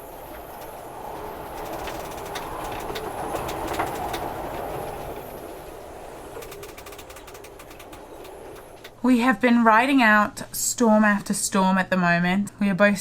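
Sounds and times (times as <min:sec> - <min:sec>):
strong wind gusting: 0:00.0 - 0:10.5
clicks and rattles: 0:01.4 - 0:09.0.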